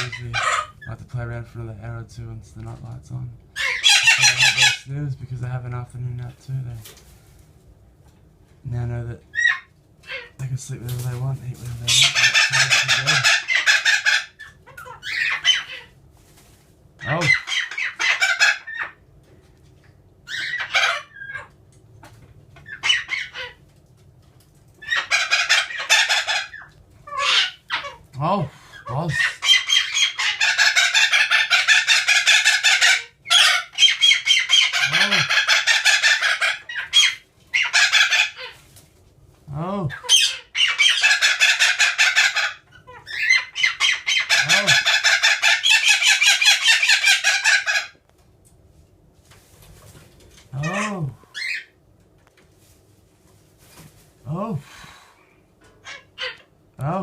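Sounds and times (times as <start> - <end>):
chickens clucking and squawking: 0.0 - 0.9, 3.6 - 4.9, 11.7 - 16.1, 17.0 - 19.1, 20.3 - 21.6, 22.4 - 23.7, 24.8 - 38.8, 40.0 - 48.0
faint low hum: 0.0 - 57.0.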